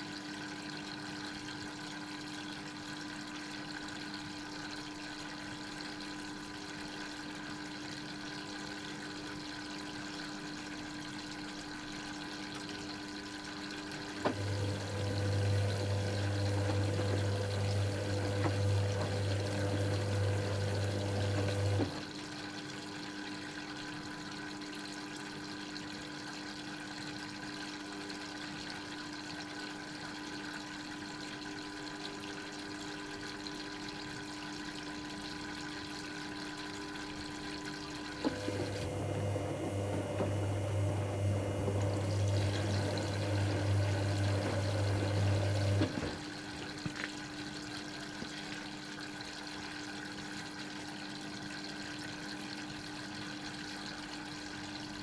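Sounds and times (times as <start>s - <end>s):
washing machine moving water: 0.0s - 55.0s.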